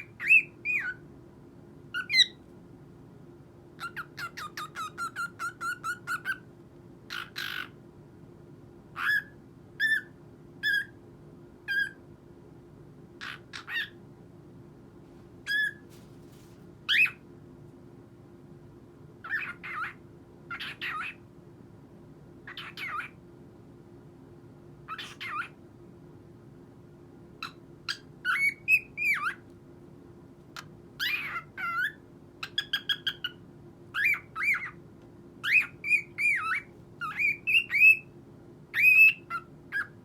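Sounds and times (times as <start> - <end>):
cockatiel chirping and whistling: 0.0 - 1.0, 2.0 - 2.4, 3.8 - 6.4, 7.1 - 7.7, 9.0 - 11.0, 11.7 - 12.0, 13.2 - 14.0, 15.5 - 15.8, 16.9 - 17.2, 19.2 - 21.2, 22.5 - 23.2, 24.9 - 25.6, 27.4 - 29.4, 30.6 - 34.8, 35.4 - 38.1, 38.7 - 40.0.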